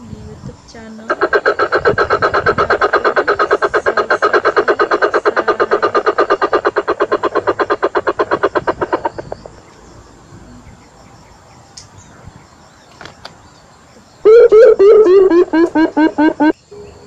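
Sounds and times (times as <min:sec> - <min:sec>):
rapid croaking calls: 0:00.6 - 0:16.7
low falling bird hoots: 0:01.1 - 0:09.6, 0:14.2 - 0:16.6.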